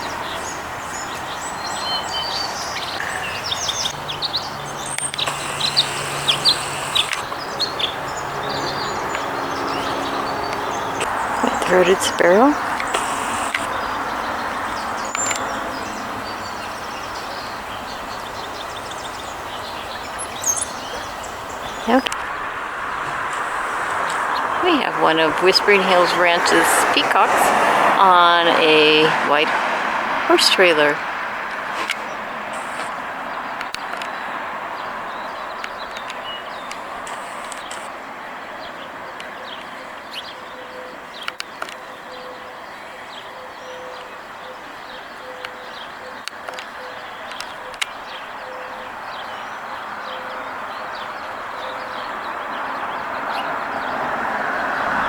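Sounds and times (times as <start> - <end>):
passing vehicle: 0.0 - 42.9, 43.9 - 55.0
outdoor background noise: 0.0 - 55.0
small birds chirping: 0.0 - 55.0
sharp clicks: 4.8 - 7.6, 10.5 - 13.9, 35.6 - 37.9
click: 12.8 - 13.7.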